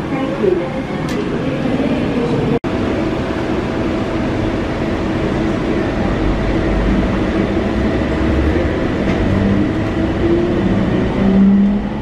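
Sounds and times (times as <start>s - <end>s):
train car running noise: 0.0s - 12.0s.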